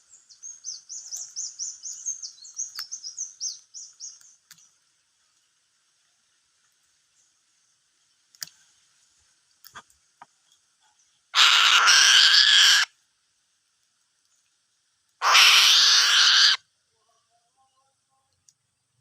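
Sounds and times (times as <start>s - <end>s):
faint clicks: 4.1s - 4.7s, 8.3s - 8.6s, 18.2s - 18.7s
eagle screeching calls: 11.4s - 12.9s, 15.2s - 16.6s.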